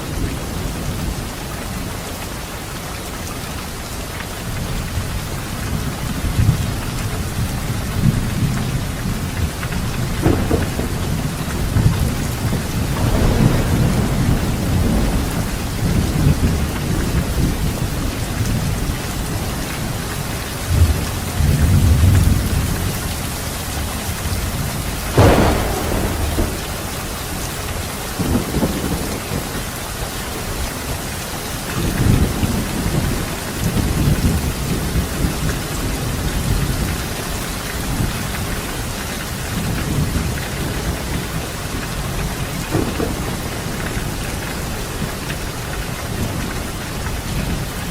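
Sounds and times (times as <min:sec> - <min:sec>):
heavy rain: 0:00.0 - 0:47.9
thunder rumbling: 0:04.6 - 0:31.0, 0:31.7 - 0:47.9
sharp thunderclap: 0:10.0 - 0:18.8, 0:24.2 - 0:29.7, 0:42.2 - 0:44.4.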